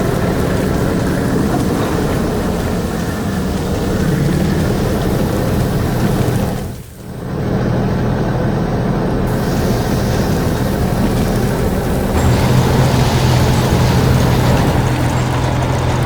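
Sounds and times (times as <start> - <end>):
construction machine engine rumbling: 0.0 - 16.0.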